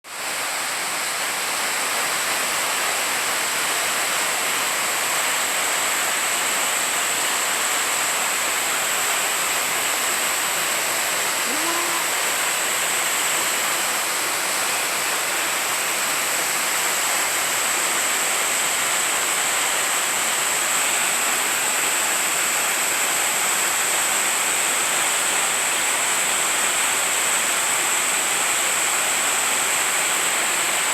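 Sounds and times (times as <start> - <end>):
waterfall pouring into pool: 0.1 - 30.9
high hiss: 9.3 - 16.4.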